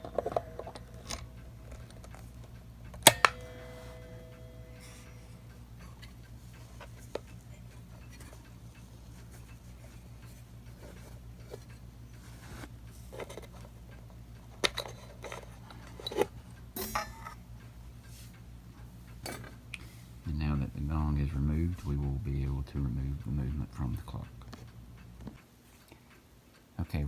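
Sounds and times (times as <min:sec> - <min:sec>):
steady low hum: 0:00.0 - 0:27.0
small metal clicks and taps: 0:12.6 - 0:17.4.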